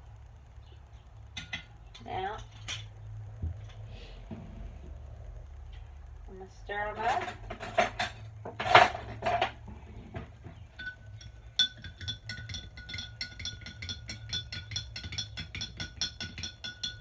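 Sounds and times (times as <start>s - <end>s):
spoon clinking against container: 10.8s - 17.0s.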